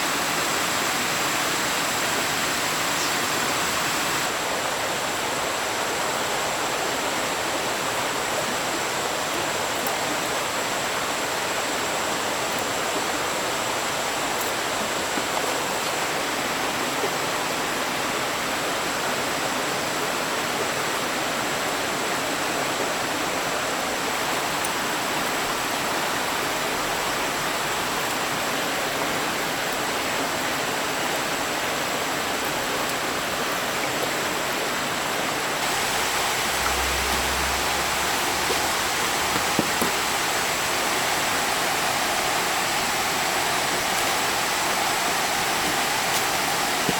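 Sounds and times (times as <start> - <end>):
stream water flowing: 0.0 - 46.9
thin high tone: 35.6 - 39.6.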